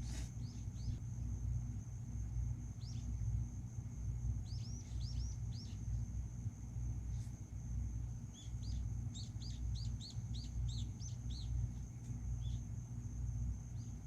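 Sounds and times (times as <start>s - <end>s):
bird chirping: 0.1s - 1.0s, 2.7s - 3.3s, 4.4s - 6.0s, 8.3s - 12.8s, 13.7s - 14.0s.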